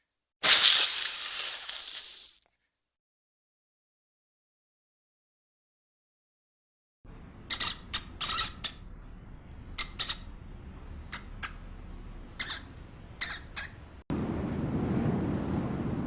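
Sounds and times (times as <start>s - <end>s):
steady low rumble: 7.1s - 16.0s
bird squawks: 7.4s - 8.9s, 9.7s - 10.4s, 11.1s - 11.7s, 12.3s - 14.0s.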